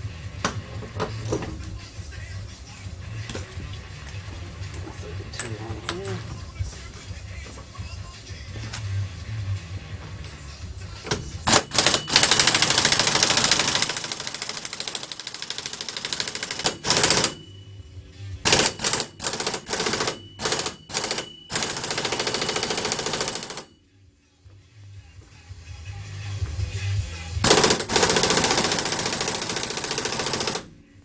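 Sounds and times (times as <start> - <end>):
impact wrench hammering: 11.1 - 17.5, 18.5 - 23.7, 27.4 - 30.7.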